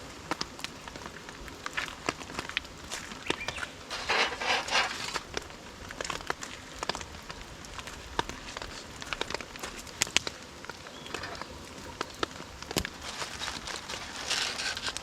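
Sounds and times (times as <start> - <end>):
small sharp clicks and crackles: 0.2 - 15.0
rustling crinkling: 0.9 - 15.0.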